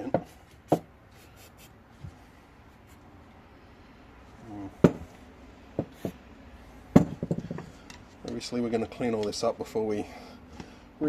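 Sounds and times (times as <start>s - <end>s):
tools clicking and knocking: 6.9s - 8.4s.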